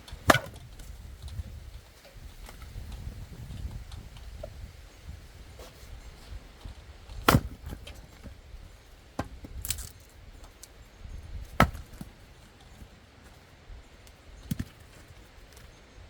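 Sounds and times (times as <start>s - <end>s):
sharp chopping knocks: 7.2s - 7.8s, 11.6s - 12.1s.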